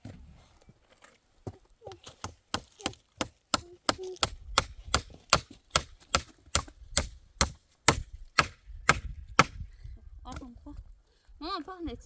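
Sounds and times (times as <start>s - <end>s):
tool striking wood: 2.2s - 9.6s.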